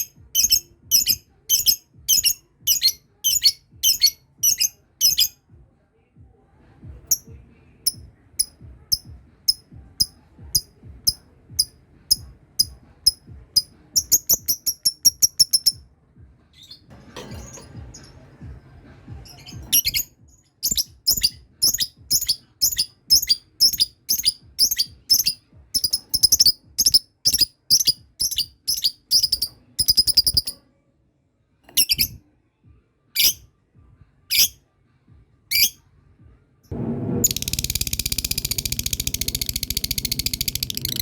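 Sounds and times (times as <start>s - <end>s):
lovebird chattering calls: 20.6s - 30.5s.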